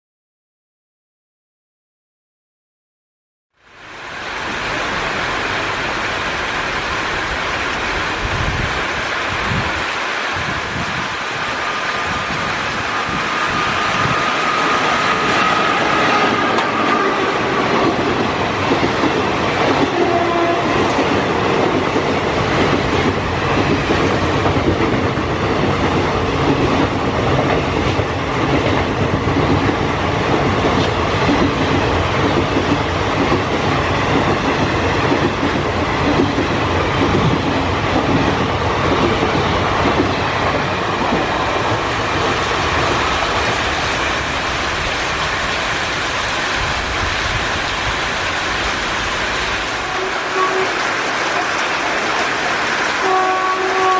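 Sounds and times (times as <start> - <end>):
heavy rain hissing: 3.6 - 24.5, 35.9 - 53.0
train wheels clattering over rails: 11.7 - 47.4.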